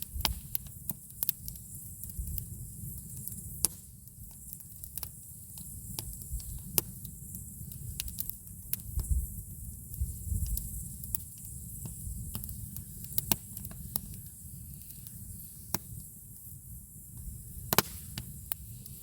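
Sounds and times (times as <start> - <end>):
campfire crackling: 0.0 - 19.0.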